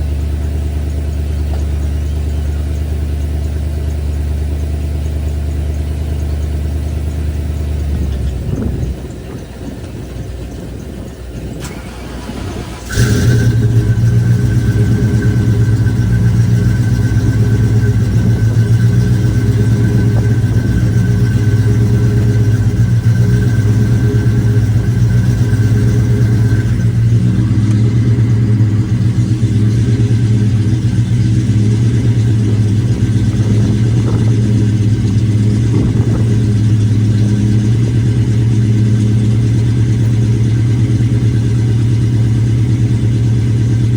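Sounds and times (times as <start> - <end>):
car engine cold-starting: 0.0 - 43.9
high steady whine: 8.0 - 41.0.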